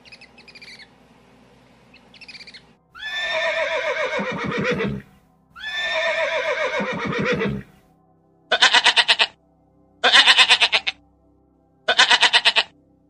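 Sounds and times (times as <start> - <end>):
horse whinnying: 3.0 - 7.7, 8.5 - 9.4, 10.0 - 10.9, 11.9 - 12.7.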